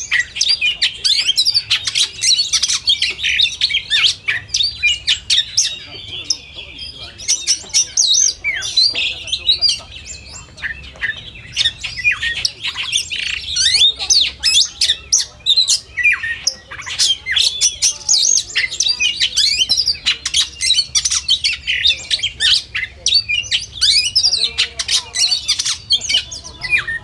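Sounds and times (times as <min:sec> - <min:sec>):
birds singing: 0:00.0 - 0:27.0.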